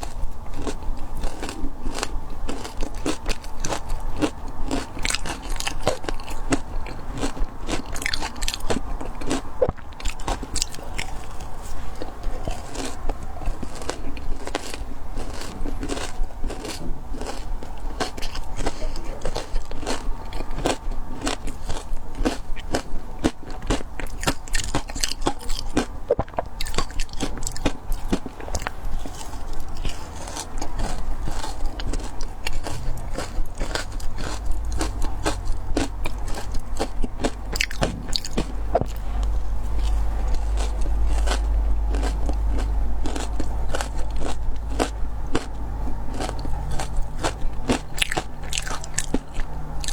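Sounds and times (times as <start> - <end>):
ice being chewed with crunches: 0.0 - 49.9.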